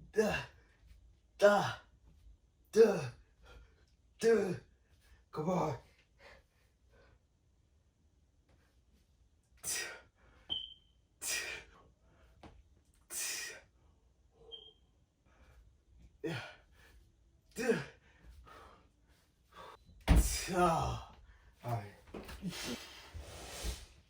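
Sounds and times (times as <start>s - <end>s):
man grunting: 0.0s - 0.5s, 1.4s - 1.8s, 2.7s - 3.2s, 4.2s - 4.7s, 16.2s - 16.6s, 17.6s - 18.0s, 20.2s - 21.8s.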